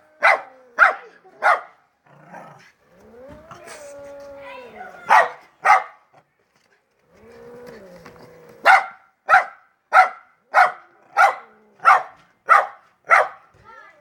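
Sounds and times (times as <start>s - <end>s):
long falling wailing cry: 3.0s - 5.1s
dog barking sharply: 5.1s - 6.0s, 8.7s - 13.4s.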